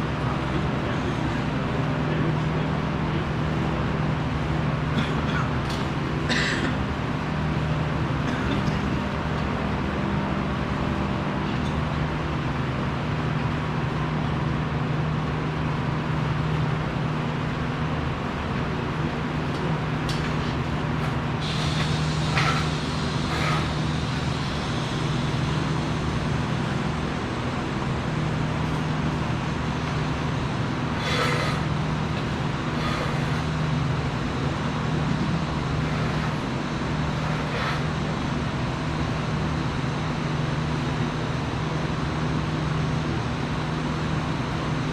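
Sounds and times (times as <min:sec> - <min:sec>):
machinery drone: 0:18.8 - 0:44.5
hiss: 0:21.0 - 0:28.9, 0:30.9 - 0:31.8, 0:32.6 - 0:33.6, 0:35.2 - 0:38.2.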